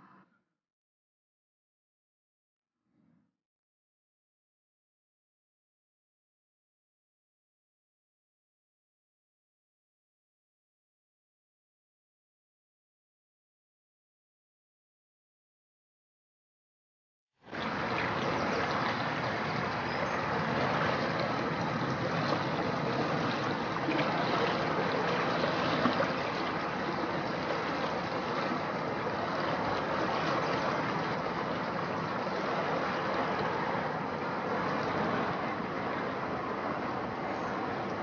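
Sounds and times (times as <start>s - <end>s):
faint steady hum: 17.5s - 38.0s
fast-flowing river water rushing: 17.5s - 38.0s.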